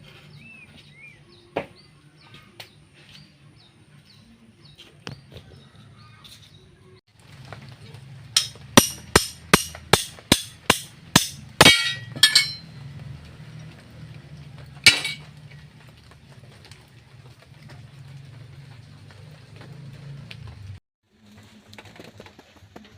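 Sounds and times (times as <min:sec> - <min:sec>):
hammer striking metal: 0:08.4 - 0:12.7, 0:14.9 - 0:15.2.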